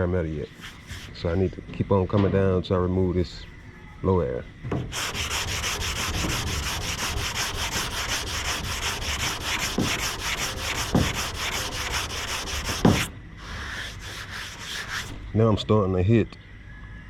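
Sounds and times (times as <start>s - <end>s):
sanding block on car panel: 4.9s - 15.2s.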